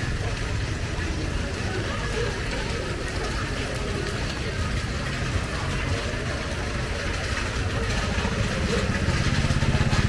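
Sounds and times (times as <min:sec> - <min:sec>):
vehicle engine idling: 0:06.6 - 0:10.0.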